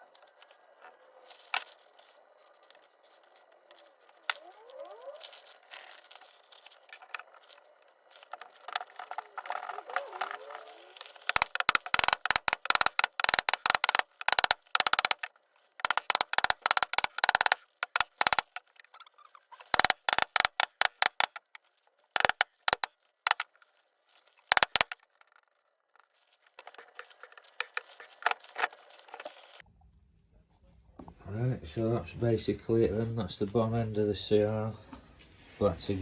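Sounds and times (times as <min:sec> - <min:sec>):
ratchet wrench clicking: 0:11.2 - 0:18.6, 0:19.6 - 0:21.6, 0:22.2 - 0:23.4, 0:24.5 - 0:25.3.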